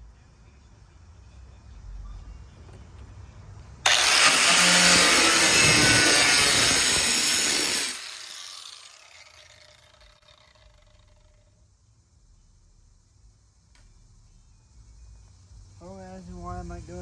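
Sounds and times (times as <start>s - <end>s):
cut-off wheel cutting sheet metal: 3.9s - 11.3s.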